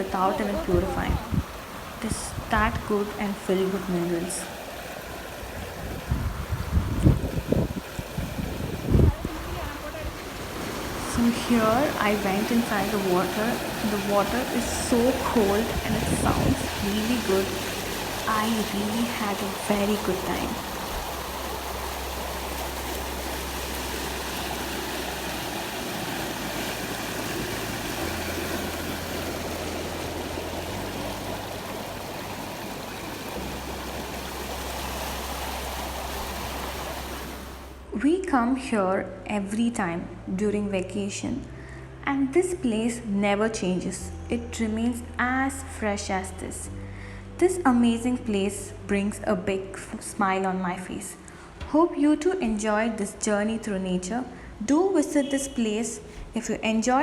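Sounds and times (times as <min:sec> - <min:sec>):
wind buffeting microphone: 0:00.0 - 0:03.2, 0:05.0 - 0:37.6
mountain stream rushing: 0:00.0 - 0:37.9.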